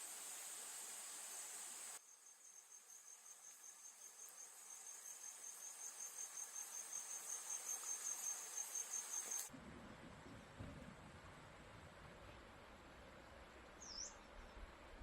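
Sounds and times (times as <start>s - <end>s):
crickets chirping: 0.0s - 9.5s
high insect drone: 0.0s - 9.5s.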